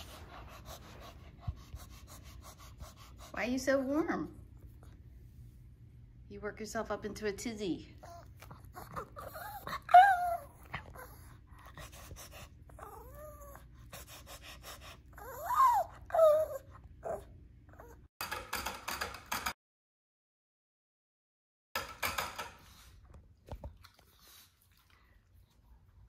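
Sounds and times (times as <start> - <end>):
dog whining yips: 8.0 - 11.3, 15.2 - 18.0.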